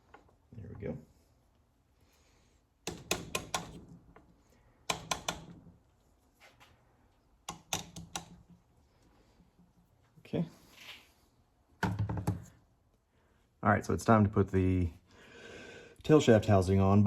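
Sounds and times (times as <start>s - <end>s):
sharp clicks and knocks of tools: 2.8s - 5.6s, 7.4s - 8.6s.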